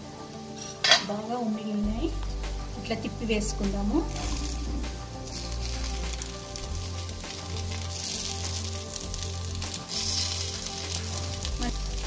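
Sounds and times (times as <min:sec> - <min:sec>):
food sizzling in hot oil: 0:00.0 - 0:12.0
wooden stick turning food: 0:04.2 - 0:12.0.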